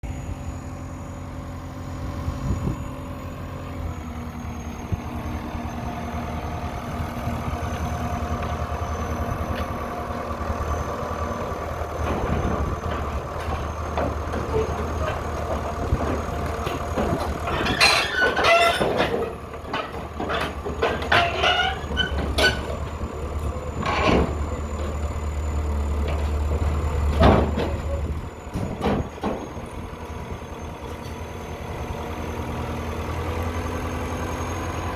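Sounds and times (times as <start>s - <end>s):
bulldozer diesel engine running: 0.0s - 34.9s
crawler track squeals and clanks: 0.3s - 34.9s.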